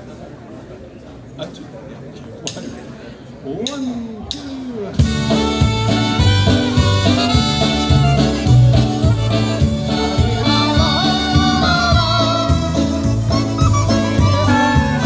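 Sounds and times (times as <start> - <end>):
polka band playing: 4.9 - 15.0
oom-pah bass: 5.0 - 15.0.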